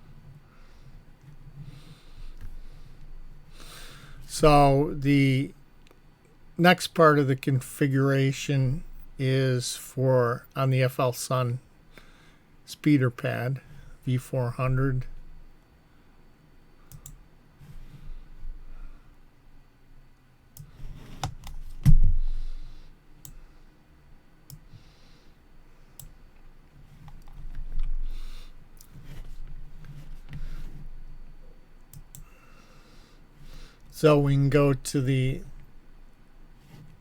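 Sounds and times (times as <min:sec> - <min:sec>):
keyboard and mouse clicks: 0:16.9 - 0:17.2, 0:20.6 - 0:22.0, 0:27.0 - 0:28.0.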